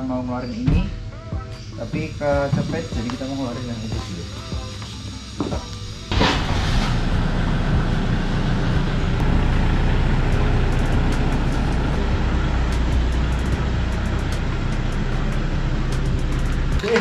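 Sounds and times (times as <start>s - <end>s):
truck engine humming: 2.8s - 17.0s.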